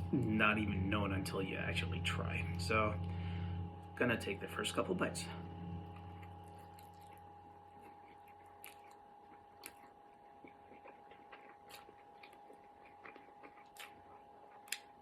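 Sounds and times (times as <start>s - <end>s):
faint chewing of noodles: 5.9s - 15.0s.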